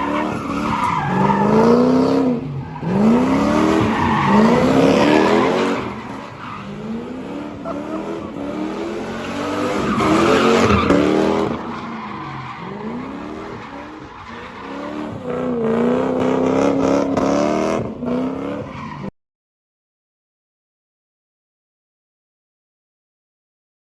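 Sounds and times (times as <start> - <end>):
tires skidding and squealing: 0.0 - 19.1
car engine revving hard: 1.1 - 6.1, 14.7 - 18.7.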